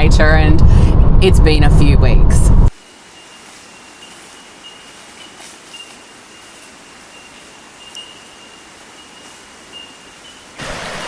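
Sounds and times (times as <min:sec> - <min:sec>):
soft even hiss: 0:02.8 - 0:10.6
thin high steady tone: 0:02.8 - 0:10.6
faint ticks: 0:07.4 - 0:10.4.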